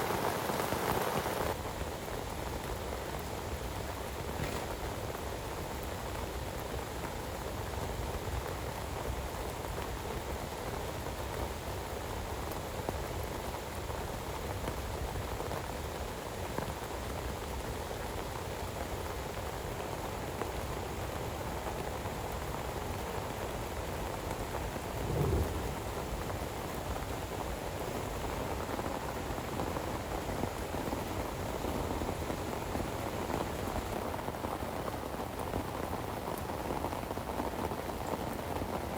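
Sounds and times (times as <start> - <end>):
heavy rain falling: 0.0 - 7.1
low thump: 25.0 - 26.2.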